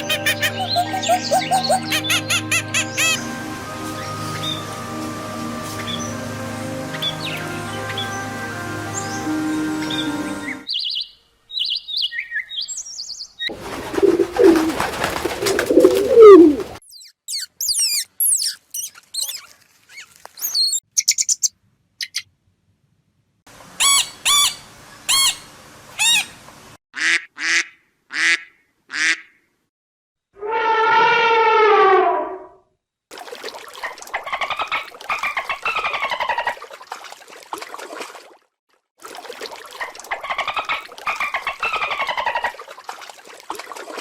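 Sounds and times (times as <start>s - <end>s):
repeated bird calls: 0.0s - 3.2s, 15.8s - 19.5s, 20.4s - 22.2s
whistled bird song: 0.0s - 4.7s, 9.0s - 13.5s, 16.8s - 19.4s, 20.4s - 22.2s
birds chirping: 0.0s - 5.0s, 5.8s - 22.2s.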